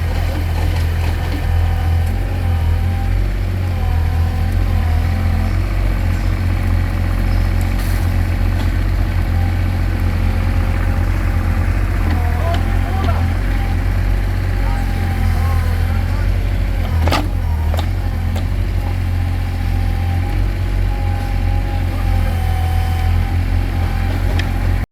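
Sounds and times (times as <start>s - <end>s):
excavator engine idling: 0.0s - 24.9s.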